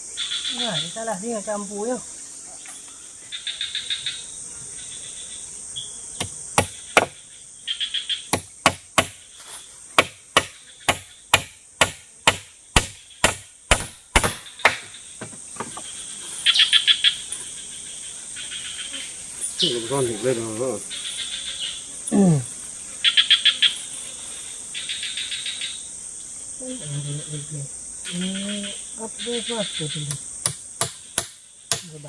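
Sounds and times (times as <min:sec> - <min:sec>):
high insect hum: 0:00.0 - 0:32.0
insects trilling: 0:00.0 - 0:32.0
blade chopping wood: 0:08.3 - 0:09.2, 0:10.0 - 0:15.7.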